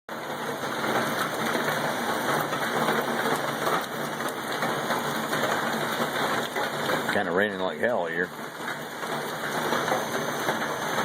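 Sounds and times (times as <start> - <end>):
heavy rain: 0.1 - 11.0.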